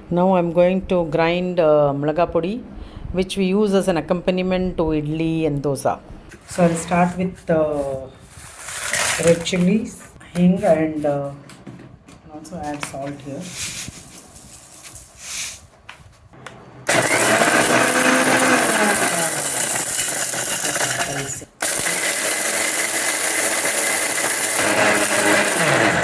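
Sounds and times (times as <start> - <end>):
mixer grinder motor grinding: 16.9 - 26.0.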